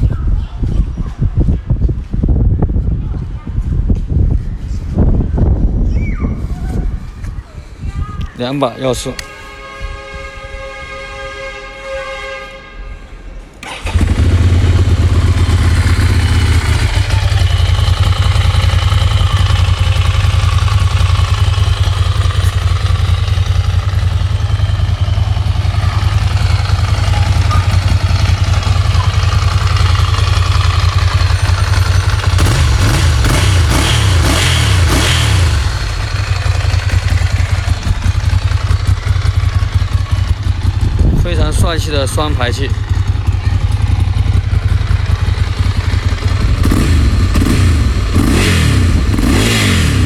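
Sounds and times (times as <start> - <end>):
motorcycle engine starting and idling: 13.6 - 50.0.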